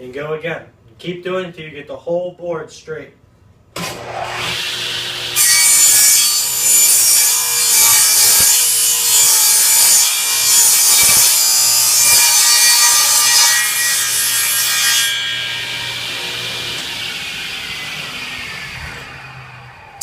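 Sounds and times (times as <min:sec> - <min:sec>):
table saw blade cutting wood: 0:03.8 - 0:20.0
saw motor humming: 0:15.1 - 0:20.0.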